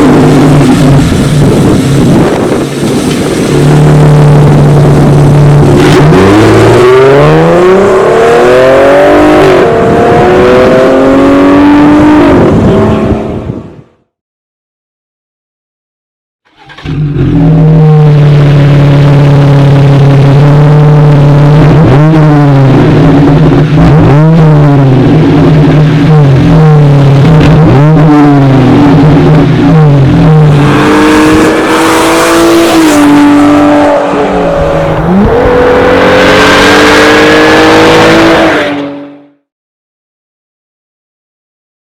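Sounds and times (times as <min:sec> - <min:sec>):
car engine revving: 0:00.0 - 0:13.4, 0:16.5 - 0:39.4.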